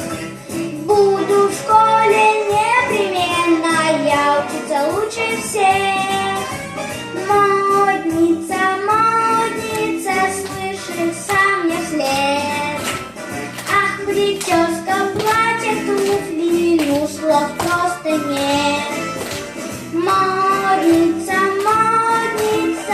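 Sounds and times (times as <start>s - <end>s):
pop backing track: 0.0s - 22.9s
girl singing: 0.6s - 6.5s, 7.2s - 12.8s, 13.7s - 19.0s, 19.9s - 22.9s.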